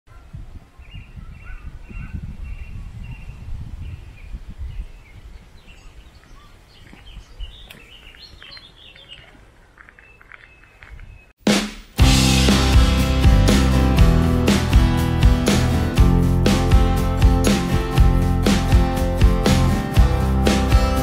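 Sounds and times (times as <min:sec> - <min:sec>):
birds singing and chirping: 0:00.1 - 0:11.3.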